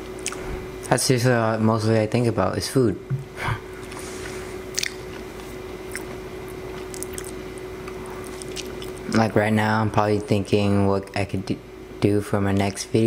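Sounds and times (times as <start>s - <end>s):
person chewing: 0.2s - 0.4s, 4.7s - 9.2s
sharp wet mouth clicks: 4.7s - 5.0s.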